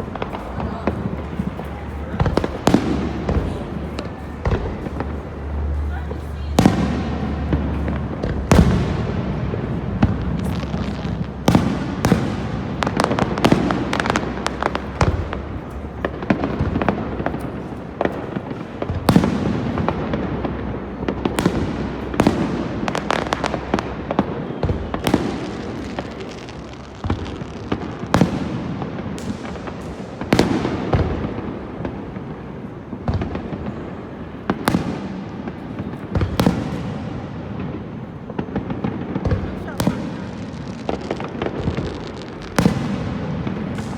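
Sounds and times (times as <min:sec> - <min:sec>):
fireworks bursting: 0:00.0 - 0:43.9.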